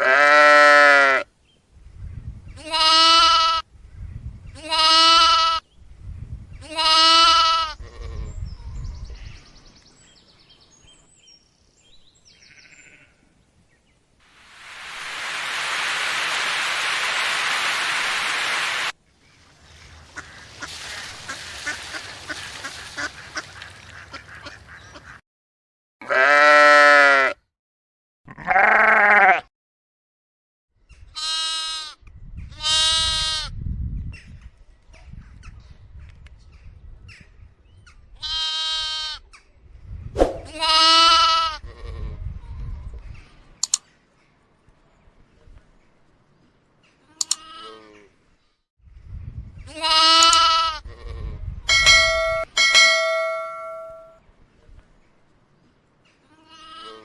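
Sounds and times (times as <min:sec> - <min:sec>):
sheep bleating: 0:00.0 - 0:01.2, 0:02.6 - 0:03.6, 0:04.7 - 0:05.6, 0:06.7 - 0:08.2, 0:12.4 - 0:13.2, 0:26.0 - 0:27.4, 0:28.3 - 0:29.5, 0:49.7 - 0:51.1, 0:56.4 - 0:57.0
steady hiss of noise: 0:14.3 - 0:21.4.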